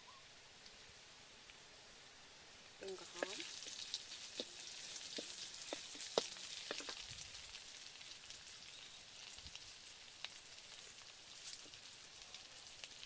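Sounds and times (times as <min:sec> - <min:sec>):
egg sizzling in oil: 0:02.6 - 0:13.0
oil popping and crackling: 0:02.8 - 0:13.0.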